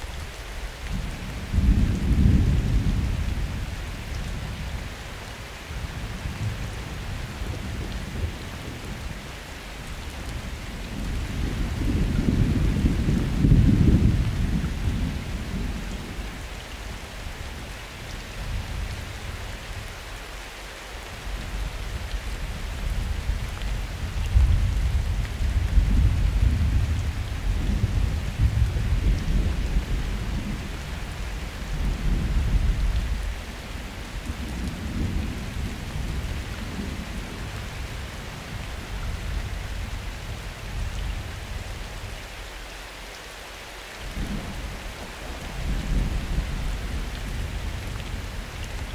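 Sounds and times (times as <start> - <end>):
rain hissing on surfaces: 0.0 - 48.9
low thunder rolling: 10.9 - 16.2.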